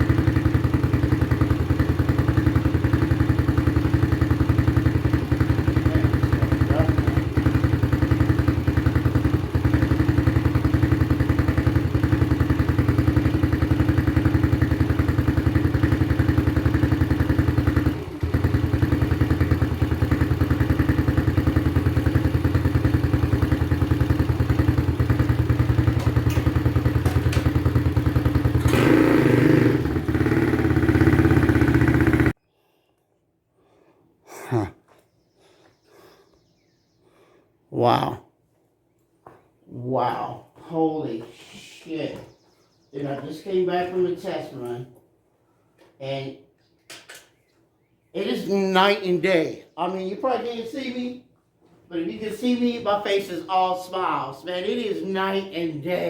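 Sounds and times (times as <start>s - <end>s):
motorbike engine running: 0.0s - 32.4s.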